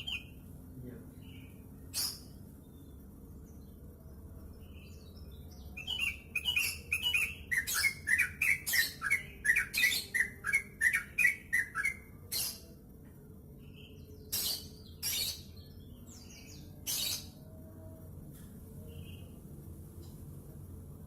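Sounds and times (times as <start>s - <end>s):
bird singing bubbly chirps: 0.0s - 0.5s, 4.6s - 12.6s.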